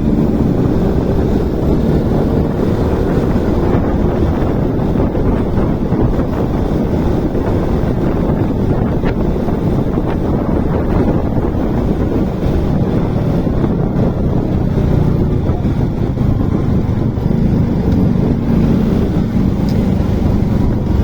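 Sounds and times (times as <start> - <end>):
motorcycle engine running: 0.0 - 21.0
wind rush on microphone: 0.0 - 21.0.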